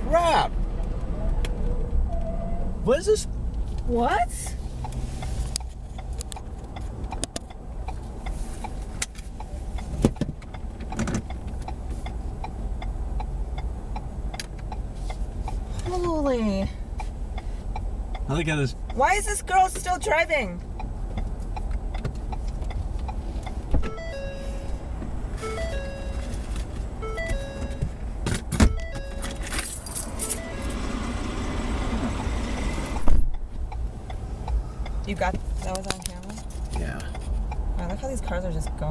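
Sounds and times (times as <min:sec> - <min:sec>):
car cabin rumble: 0:18.0 - 0:38.9
plinking tune: 0:23.9 - 0:26.4, 0:27.0 - 0:27.9, 0:28.7 - 0:30.9
jingling rattles: 0:29.2 - 0:30.5.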